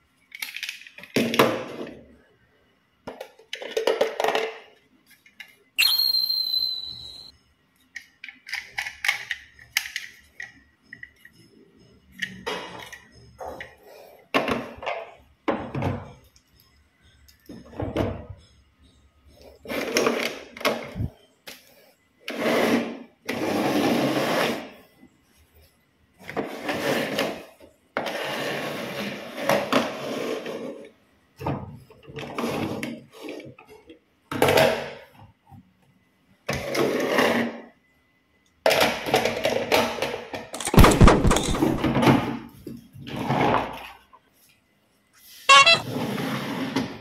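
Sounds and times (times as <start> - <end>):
plastic clattering: 40.6 - 42.2.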